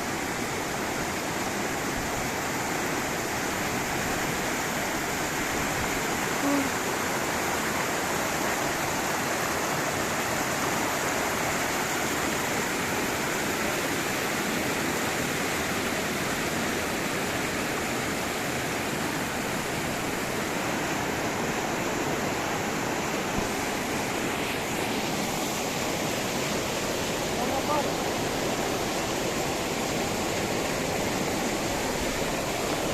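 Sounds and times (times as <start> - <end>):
river water rushing over rocks: 0.0 - 32.9.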